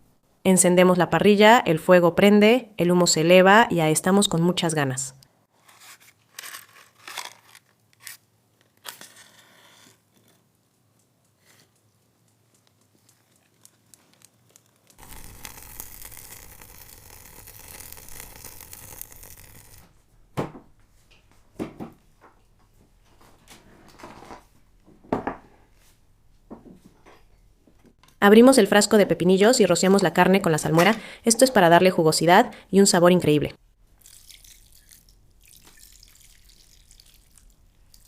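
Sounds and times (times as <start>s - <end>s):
wood fire crackling and popping: 12.6s - 20.0s.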